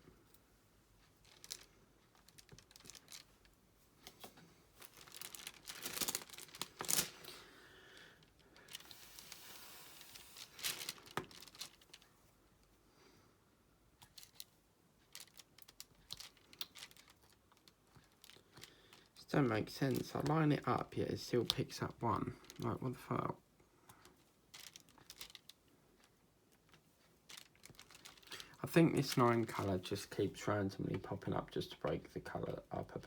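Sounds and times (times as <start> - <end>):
plastic crinkling: 1.0 - 12.1, 14.0 - 23.3, 24.0 - 33.0.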